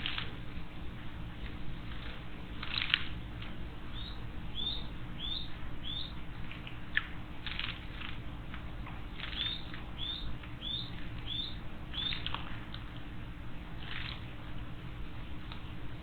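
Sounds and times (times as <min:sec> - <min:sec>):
songbird calling high notes: 0:04.0 - 0:06.2, 0:09.4 - 0:12.2.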